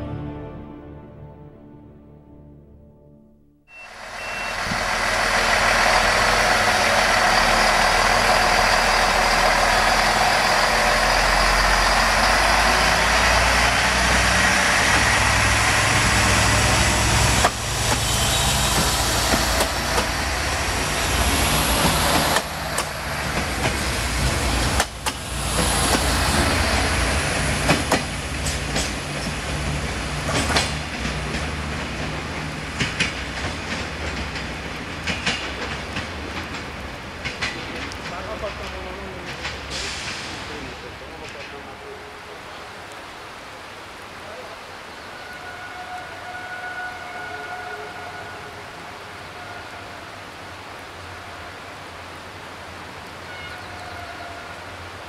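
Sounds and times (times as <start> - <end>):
train wheels rushing on rail: 3.8 - 41.9
wheel clacks over rail joints: 17.3 - 18.1, 18.7 - 20.3, 21.7 - 26.6, 27.4 - 39.8.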